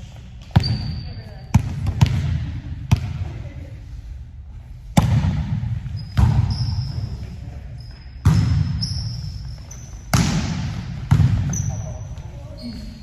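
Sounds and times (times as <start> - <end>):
volleyball slaps: 1.6 - 3.4, 5.0 - 6.7, 8.2 - 9.0, 10.0 - 11.8.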